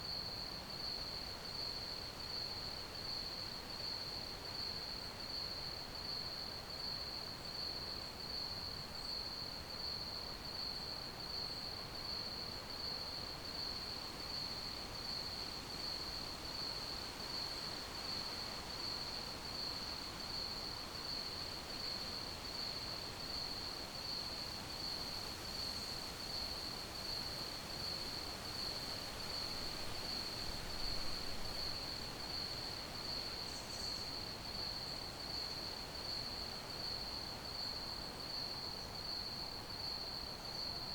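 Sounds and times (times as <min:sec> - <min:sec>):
crickets chirping: 0:13.6 - 0:40.9.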